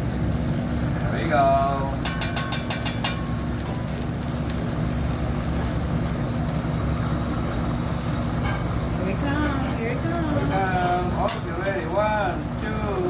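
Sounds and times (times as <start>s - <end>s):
griddle and exhaust hood rumbling: 0.0s - 13.0s
metal spatula clack: 2.0s - 3.8s.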